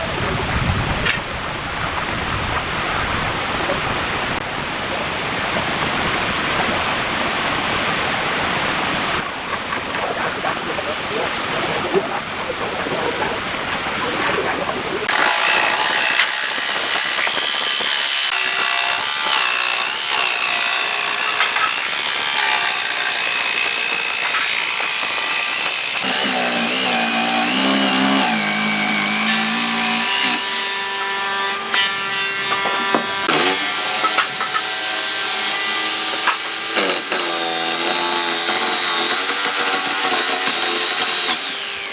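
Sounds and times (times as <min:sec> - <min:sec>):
power tool whining on wood: 0:15.1 - 0:41.9.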